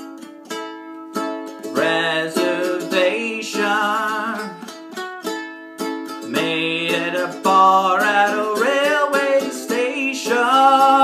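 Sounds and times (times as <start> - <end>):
plucked acoustic string instrument: 0.0 - 11.0
man singing with vibrato: 1.6 - 4.8, 6.2 - 11.0.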